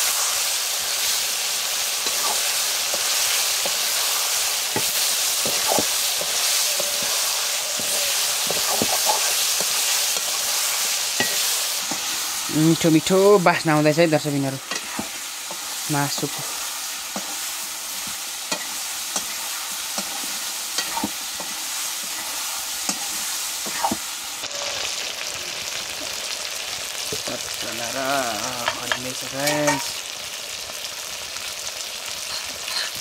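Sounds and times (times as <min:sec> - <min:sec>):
paste sizzling in a pan: 0:00.0 - 0:33.0
spoon tapping and scraping pan: 0:04.7 - 0:07.1, 0:11.1 - 0:12.1, 0:14.6 - 0:16.4, 0:18.0 - 0:24.7, 0:28.6 - 0:30.0, 0:32.3 - 0:33.0.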